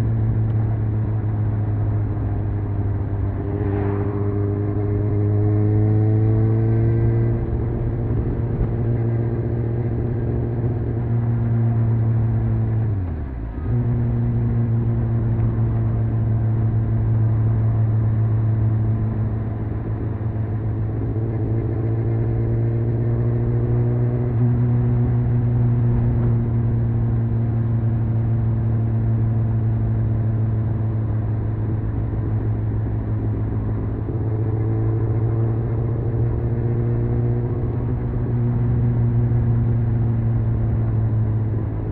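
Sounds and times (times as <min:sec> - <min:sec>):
motorcycle engine revving: 0:02.8 - 0:30.0.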